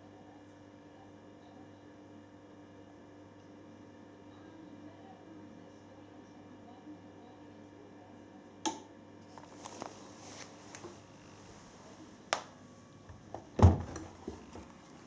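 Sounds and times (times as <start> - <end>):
washing machine door clicks: 13.4 - 14.7.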